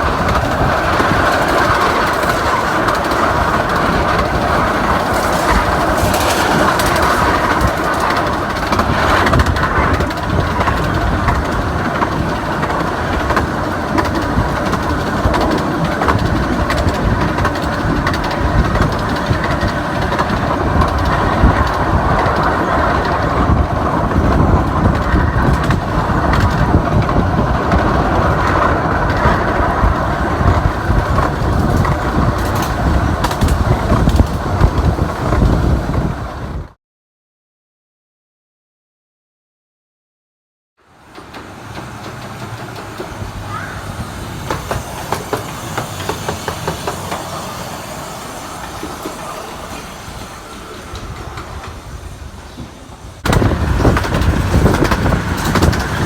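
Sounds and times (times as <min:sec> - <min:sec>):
miniature train rumbling on track: 0:00.0 - 0:36.8, 0:40.8 - 0:56.0.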